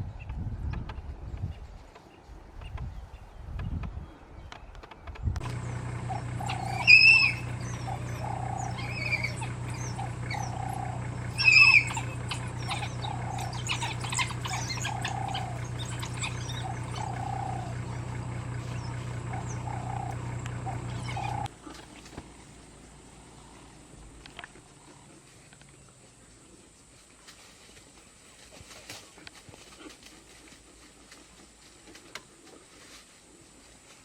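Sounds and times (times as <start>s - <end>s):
wild dogs calling: 5.4s - 25.5s
vehicle engine idling: 5.4s - 26.7s
high bird-like chirps: 6.2s - 18.0s.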